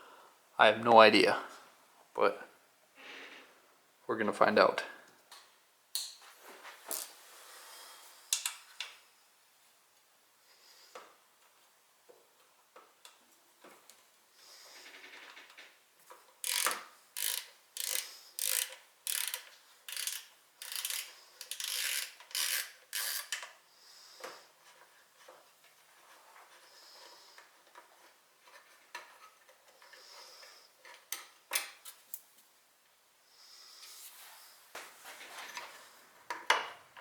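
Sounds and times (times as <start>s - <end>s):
ratchet wrench clicking: 16.4s - 23.5s.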